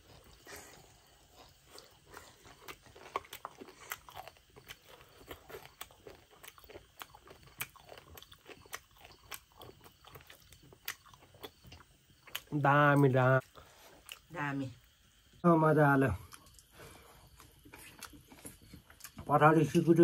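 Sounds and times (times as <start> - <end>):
person chewing wet mouth clicks: 1.4 - 12.5, 17.3 - 19.2.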